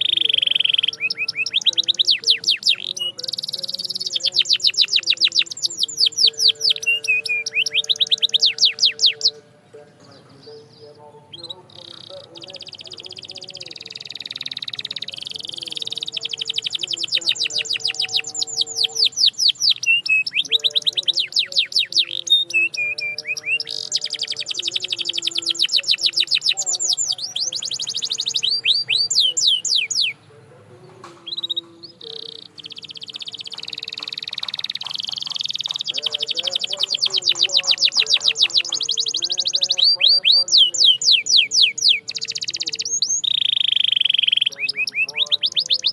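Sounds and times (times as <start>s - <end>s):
canary singing trills: 0.0s - 45.9s.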